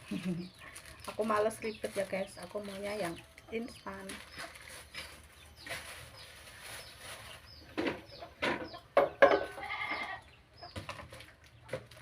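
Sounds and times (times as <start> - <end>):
goat bleating: 9.5 - 10.3.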